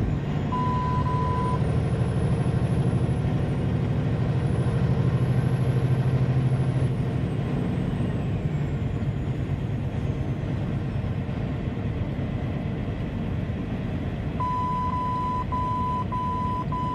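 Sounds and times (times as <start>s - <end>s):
vehicle engine and road noise: 0.0s - 16.9s
high beeping: 14.4s - 16.9s.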